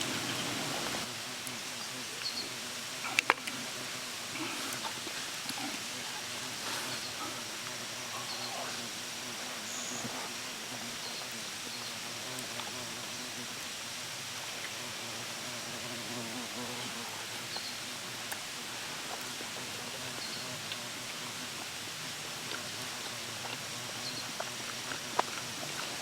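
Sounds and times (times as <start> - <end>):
steady hiss: 0.0 - 26.0
faint clicks: 3.1 - 3.6.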